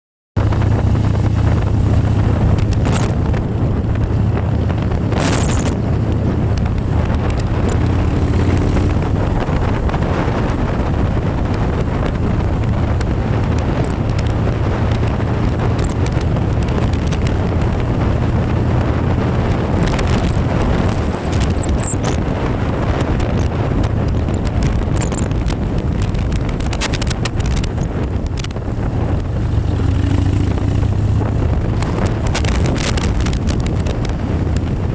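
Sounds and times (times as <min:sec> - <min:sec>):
motorcycle engine hum: 0:00.4 - 0:34.9
wind buffeting microphone: 0:00.4 - 0:34.9.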